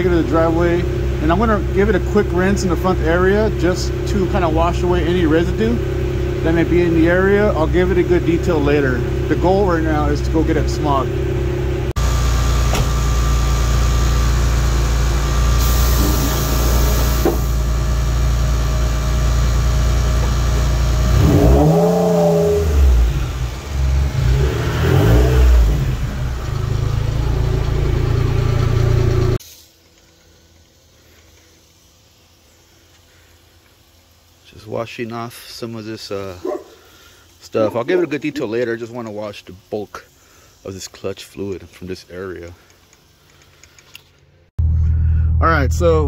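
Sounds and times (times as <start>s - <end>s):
car engine idling and revving: 0.0s - 29.4s, 44.6s - 46.0s.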